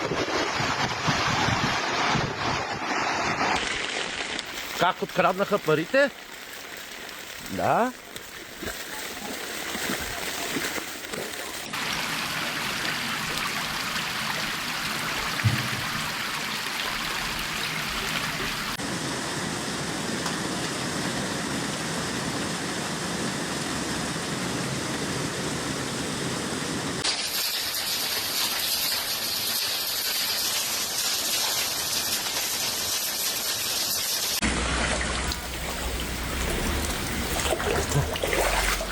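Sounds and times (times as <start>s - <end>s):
floodwater gushing: 0.0s - 18.9s, 23.7s - 38.9s
short knock: 15.4s - 16.0s.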